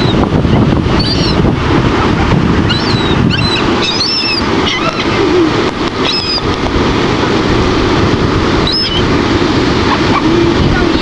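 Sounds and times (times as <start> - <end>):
surf rushing: 0.0 - 11.0
wind on microphone: 0.0 - 11.0
seagulls calling: 0.9 - 6.6, 8.6 - 9.2, 9.8 - 11.0.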